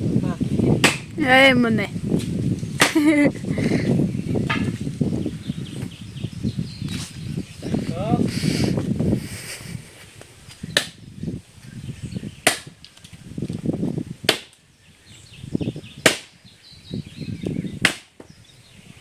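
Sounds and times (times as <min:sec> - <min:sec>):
wood chopping strikes: 0:00.8 - 0:01.1, 0:02.2 - 0:03.0, 0:10.8 - 0:11.0, 0:12.4 - 0:12.7, 0:14.3 - 0:14.6, 0:16.0 - 0:16.3, 0:17.8 - 0:18.3.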